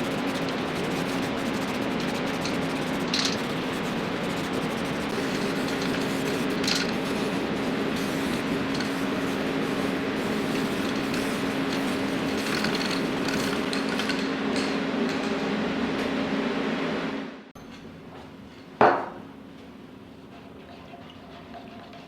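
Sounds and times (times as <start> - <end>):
machine humming: 0.0 - 13.7.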